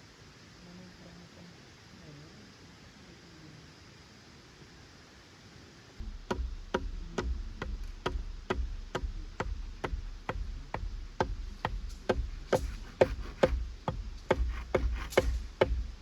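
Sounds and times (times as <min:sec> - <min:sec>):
sharp tool strike knocks: 0:11.2 - 0:13.6, 0:14.2 - 0:15.8.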